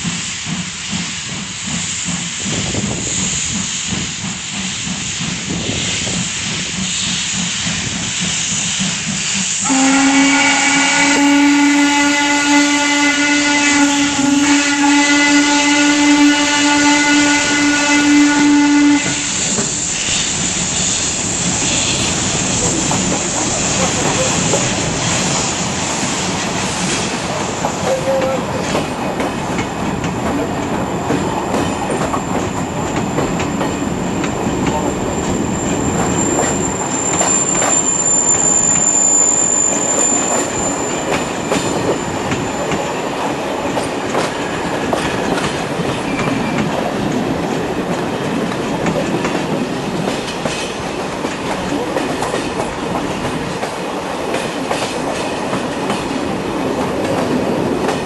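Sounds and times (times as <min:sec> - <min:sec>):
train rumbling along track: 0:00.0 - 0:58.0
wheels clacking over rail joints: 0:26.3 - 0:38.1
high thin wheel squeal: 0:35.2 - 0:42.7.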